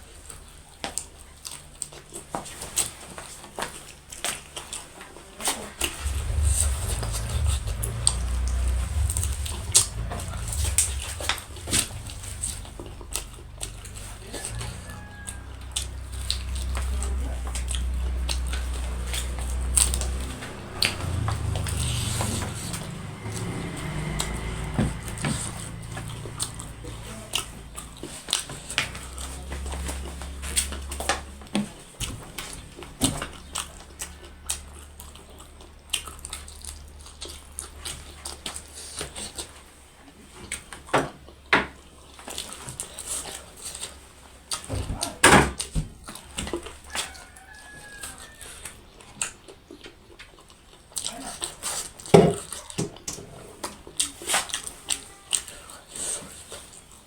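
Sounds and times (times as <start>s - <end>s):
chewing and mouth smacking: 0.4s - 6.4s, 26.0s - 39.4s, 40.1s - 55.8s
low rumble: 5.8s - 35.4s.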